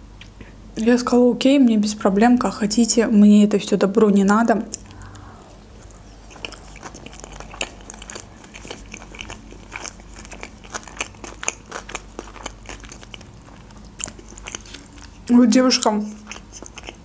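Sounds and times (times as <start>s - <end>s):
close-miked chewing: 5.8s - 17.0s.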